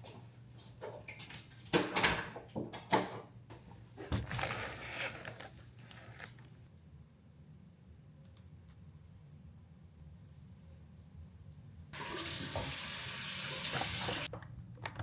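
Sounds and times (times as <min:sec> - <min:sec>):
rustling: 0:04.0 - 0:06.6
objects knocking and clattering: 0:14.3 - 0:15.0.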